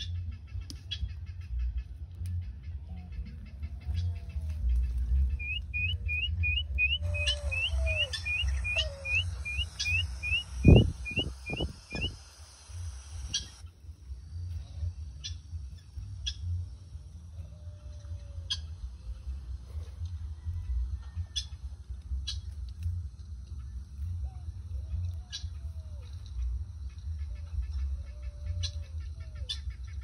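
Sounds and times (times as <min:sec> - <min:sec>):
wind rumbling on microphone: 0:02.7 - 0:28.8
lower bird calls: 0:02.8 - 0:13.6
bird chirping: 0:03.0 - 0:12.2.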